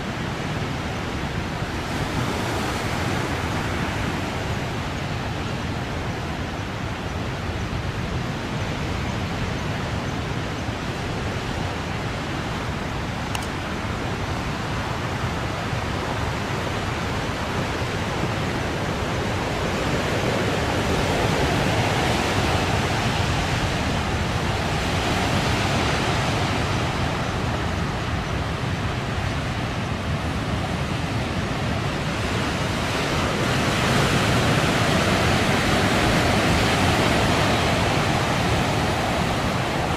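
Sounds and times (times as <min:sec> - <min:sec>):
wind: 0:00.0 - 0:39.9
heavy surf breaking: 0:30.1 - 0:39.9.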